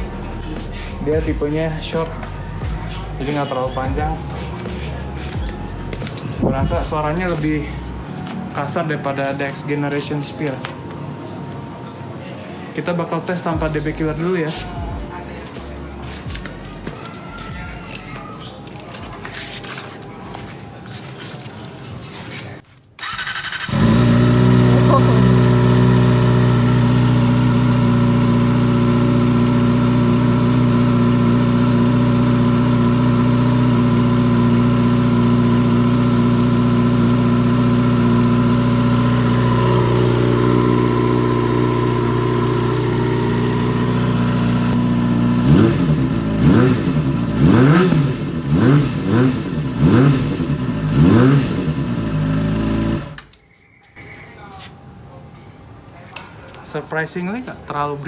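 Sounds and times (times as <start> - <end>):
motorcycle engine idling: 0.0 - 8.0, 23.0 - 53.2
motorcycle engine revving: 23.0 - 53.3.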